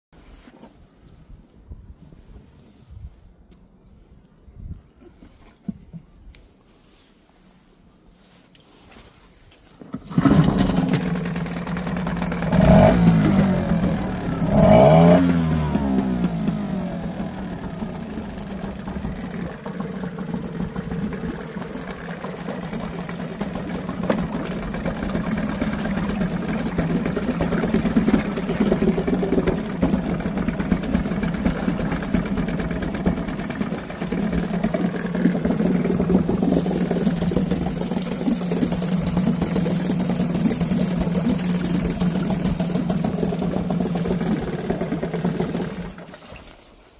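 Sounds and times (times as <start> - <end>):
outboard motor running: 9.8 - 46.5.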